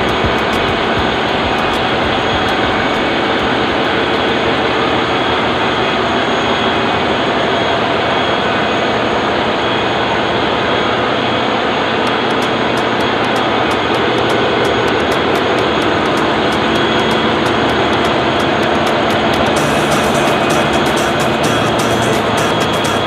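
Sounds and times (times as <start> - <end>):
engine room machinery din: 0.0 - 23.0.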